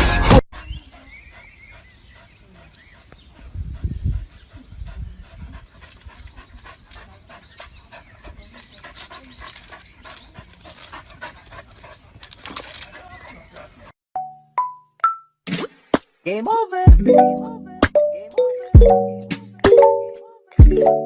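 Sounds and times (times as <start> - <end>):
dog panting: 0.6 - 13.9.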